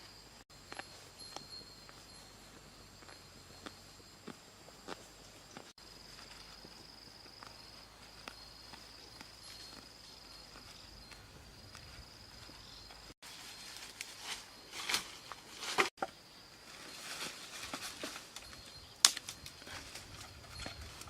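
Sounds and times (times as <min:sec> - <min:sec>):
rustling scraping noises: 0:06.0 - 0:16.0, 0:16.6 - 0:21.0.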